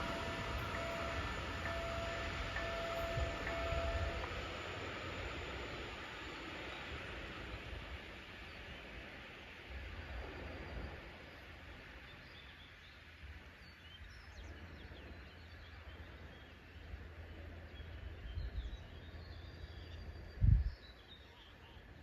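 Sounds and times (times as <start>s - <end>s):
wind rumble on microphone: 13.2s - 21.0s.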